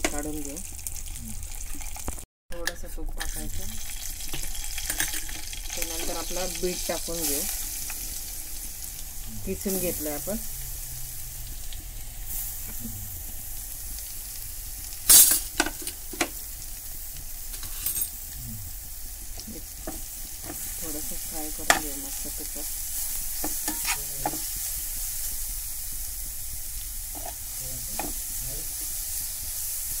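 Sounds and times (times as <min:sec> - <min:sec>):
food sizzling in a pan: 0:00.0 - 0:02.2, 0:03.1 - 0:30.0
utensils scraping and knocking pan: 0:23.4 - 0:24.5.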